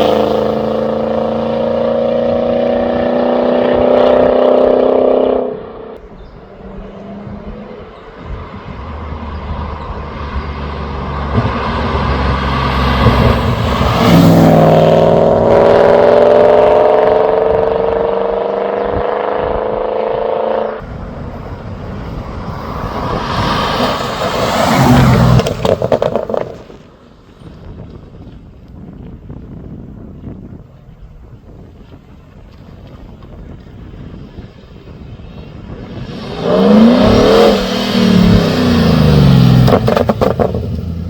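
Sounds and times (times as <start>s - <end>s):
car engine passing by: 0.0s - 18.6s, 20.1s - 26.8s, 35.4s - 41.0s.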